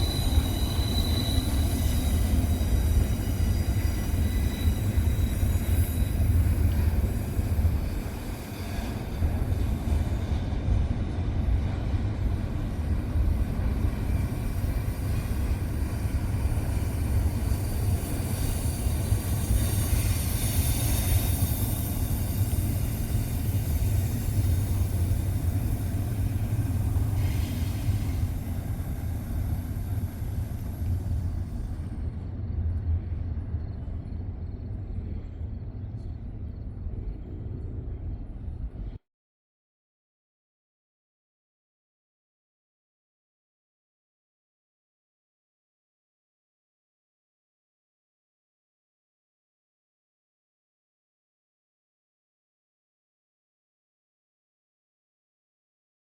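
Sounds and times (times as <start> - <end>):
freight train rumbling on rails: 0.0 - 39.0.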